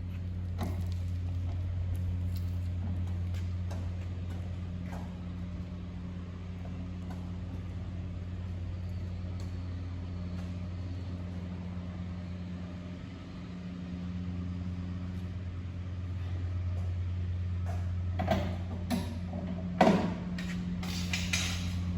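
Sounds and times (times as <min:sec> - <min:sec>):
aircraft engine humming: 0:00.0 - 0:21.9.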